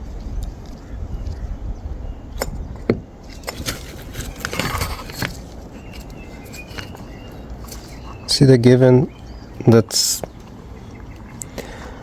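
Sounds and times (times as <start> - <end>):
rattling and rustling: 2.5 - 8.2.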